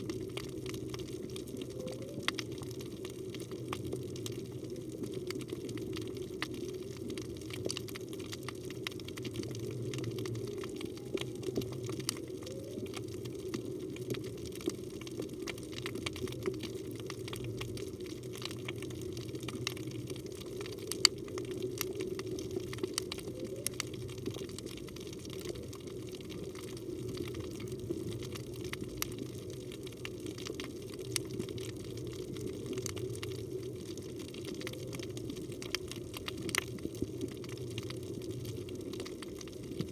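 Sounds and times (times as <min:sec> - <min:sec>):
crackling clicks: 0:00.0 - 0:39.9
underwater rush of water: 0:00.0 - 0:39.9.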